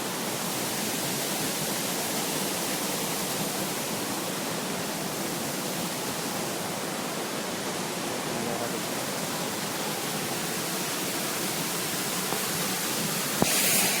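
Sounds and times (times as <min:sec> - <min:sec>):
water pouring over waterfall: 0:00.0 - 0:14.0.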